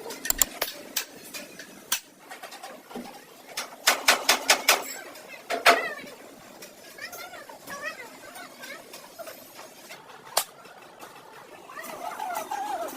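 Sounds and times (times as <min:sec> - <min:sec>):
sharp knocks and clicks: 0:00.2 - 0:00.7.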